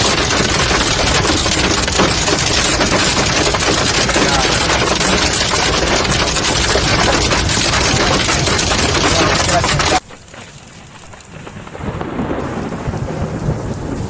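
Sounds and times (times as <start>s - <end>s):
hail and rain pounding: 0.0s - 14.0s
rain downpour: 0.0s - 14.0s.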